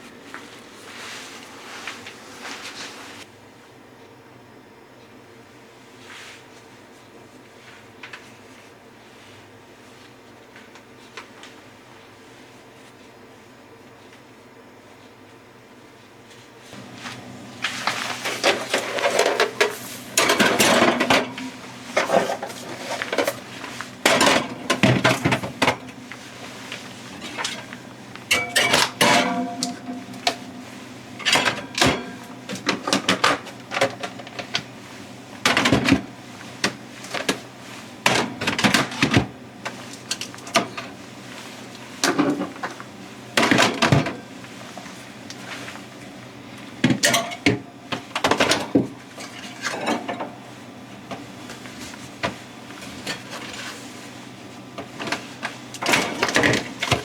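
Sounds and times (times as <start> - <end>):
dishes and pots clattering: 18.2 - 25.8, 27.1 - 30.6, 31.2 - 34.2, 46.9 - 47.6, 48.2 - 50.4.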